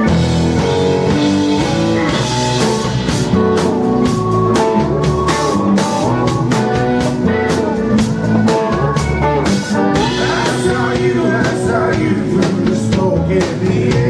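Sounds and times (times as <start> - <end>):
rock band playing instrumental: 0.0 - 14.0.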